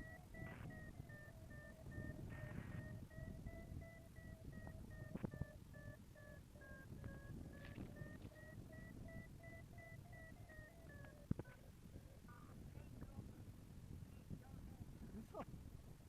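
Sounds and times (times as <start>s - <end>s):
variometer beeping: 0.0s - 13.2s
low wind rumble on microphone: 0.0s - 16.0s.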